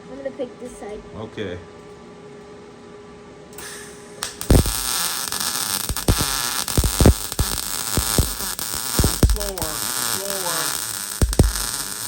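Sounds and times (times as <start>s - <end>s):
welding arc sizzling and popping: 3.6s - 12.0s.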